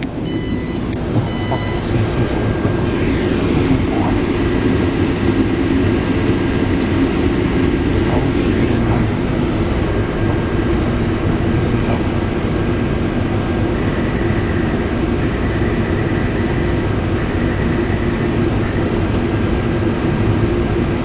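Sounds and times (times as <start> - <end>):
electric train rumble and hum: 0.0 - 21.0
short electronic tone: 0.2 - 3.3.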